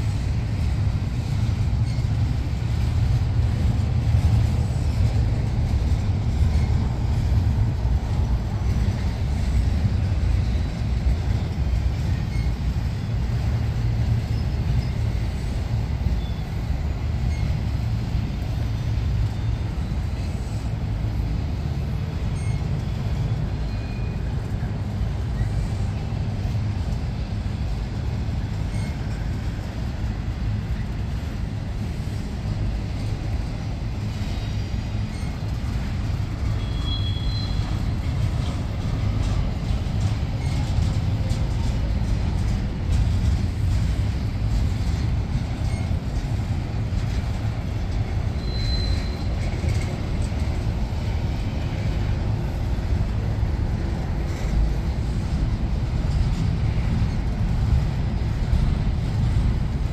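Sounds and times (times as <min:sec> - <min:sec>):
freight train wheels rumbling: 0:00.0 - 0:59.9
high wheel squeals: 0:01.7 - 0:02.2, 0:10.4 - 0:13.2, 0:13.8 - 0:18.2, 0:19.2 - 0:20.7, 0:22.1 - 0:26.1, 0:28.4 - 0:29.6, 0:34.0 - 0:41.4, 0:45.6 - 0:46.4, 0:48.1 - 0:50.6.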